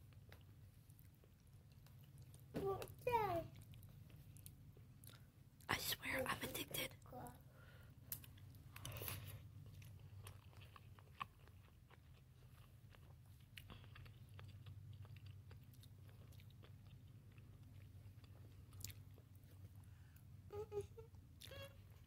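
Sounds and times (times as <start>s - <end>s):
crunchy chewing: 0.0s - 2.5s, 8.1s - 20.3s.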